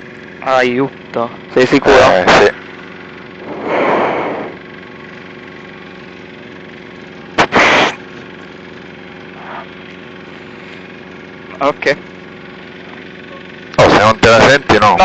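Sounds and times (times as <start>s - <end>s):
light aircraft engine idling: 0.0s - 15.0s
rush of noise: 3.4s - 4.6s.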